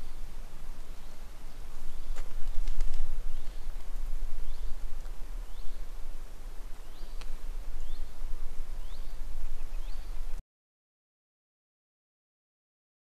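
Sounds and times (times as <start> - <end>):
low rumble on microphone: 0.0 - 10.4
bird chirping call: 8.8 - 10.4.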